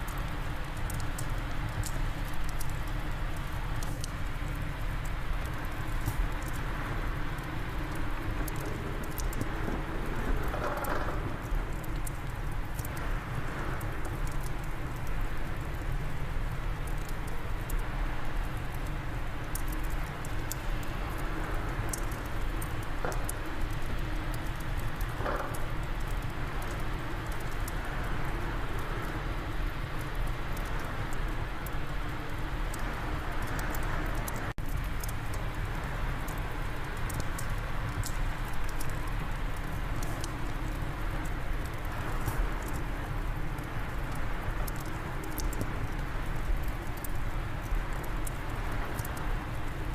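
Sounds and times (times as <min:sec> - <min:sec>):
fire crackling and popping: 0:00.0 - 0:49.9.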